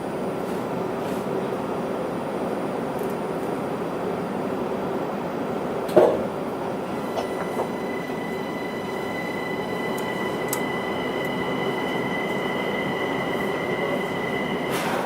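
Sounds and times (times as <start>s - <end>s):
train running noise: 0.0s - 15.0s
high electrical whine: 6.9s - 15.0s.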